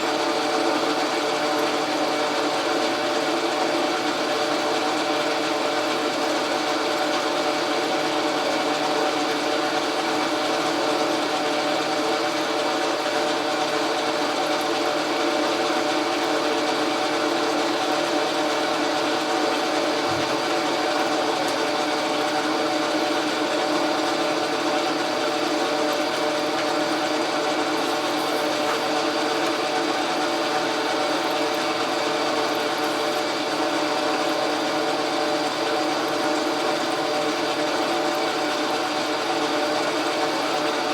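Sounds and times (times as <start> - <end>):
metal lathe whining: 18.1 - 40.8.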